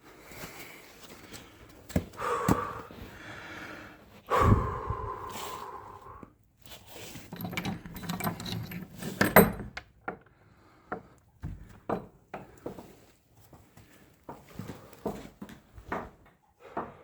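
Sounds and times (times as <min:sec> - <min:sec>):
small clicks and knocks: 0:07.3 - 0:12.8.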